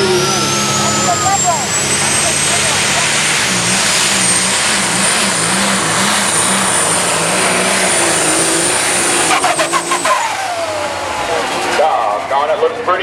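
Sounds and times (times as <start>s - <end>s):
turbo whistle: 0.0s - 2.5s, 9.2s - 10.9s
diesel tractor engine running hard: 0.0s - 13.0s.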